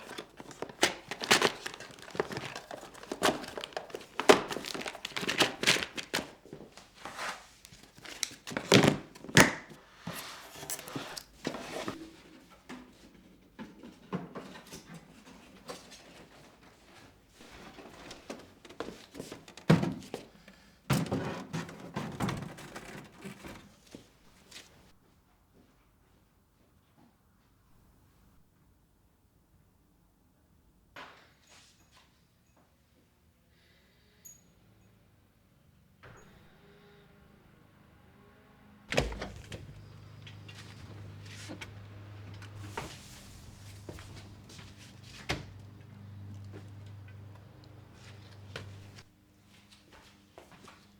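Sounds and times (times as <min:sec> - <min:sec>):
thuds and knocks: 0:38.9 - 0:41.0.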